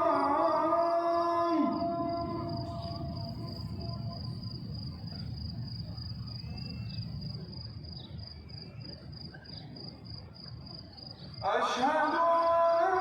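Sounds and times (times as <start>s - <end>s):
cricket chirping: 0.0s - 13.0s
low background rumble: 1.6s - 7.4s.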